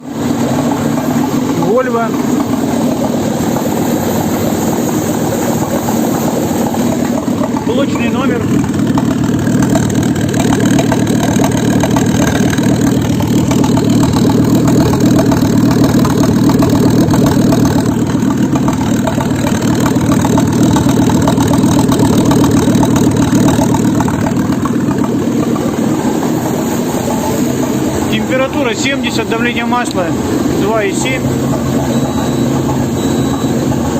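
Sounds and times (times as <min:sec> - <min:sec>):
petrol engine idling: 0:00.0 - 0:33.9.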